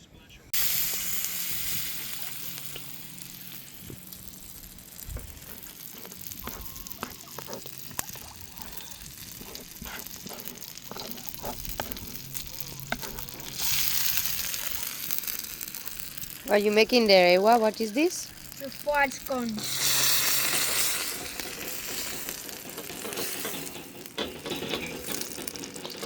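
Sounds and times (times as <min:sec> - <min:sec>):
fire pops and crackles: 0:00.5 - 0:26.0
food sizzling over a campfire: 0:00.5 - 0:26.0.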